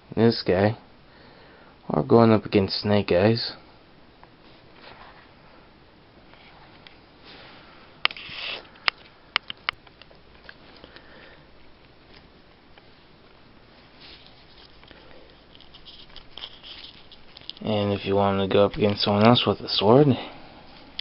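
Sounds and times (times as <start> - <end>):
light rustling: 13.9 - 19.4.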